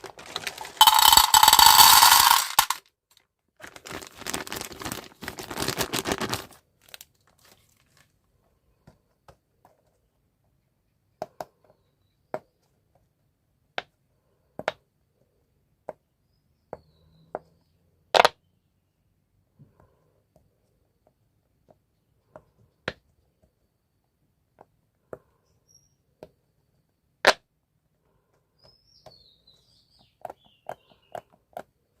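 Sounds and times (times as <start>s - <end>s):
candy packaging crinkling: 0.0s - 2.8s, 3.6s - 8.1s.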